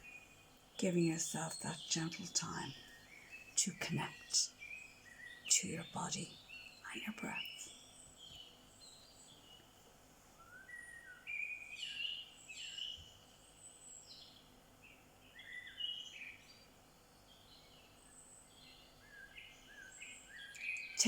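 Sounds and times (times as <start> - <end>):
birds chirping: 0.0 - 9.8, 10.4 - 21.0
faint outdoor hiss: 0.0 - 21.0.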